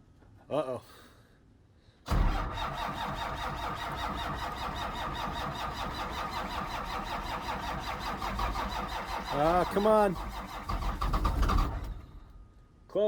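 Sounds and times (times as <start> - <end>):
diesel engine cranking: 2.1 - 12.4.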